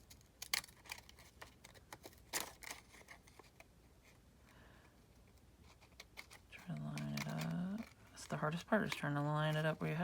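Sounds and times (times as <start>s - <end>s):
scissors cutting paper: 5.8s - 10.0s.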